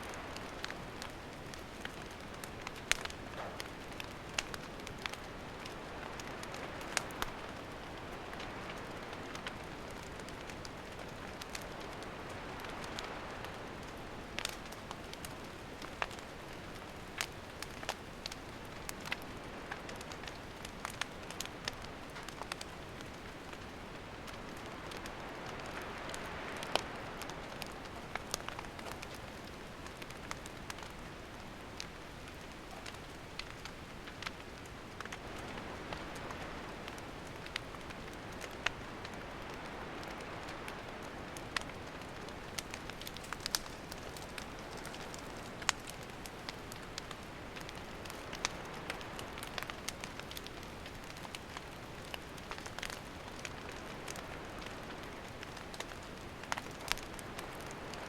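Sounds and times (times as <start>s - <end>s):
campfire crackling and popping: 0.0s - 58.0s
fire hissing: 35.0s - 58.0s.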